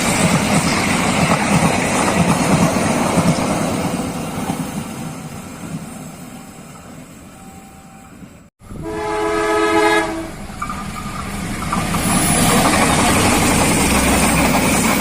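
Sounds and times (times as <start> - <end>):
train wheels rumbling on rails: 0.0 - 7.9, 8.7 - 15.0
train horn blast: 8.7 - 10.4.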